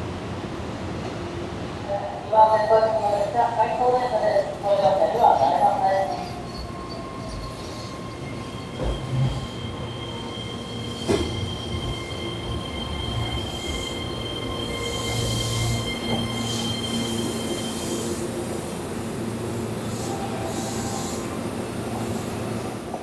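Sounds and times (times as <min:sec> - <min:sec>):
low train rumble: 0:00.0 - 0:23.0
train wheels squealing: 0:04.3 - 0:18.7, 0:19.7 - 0:22.7.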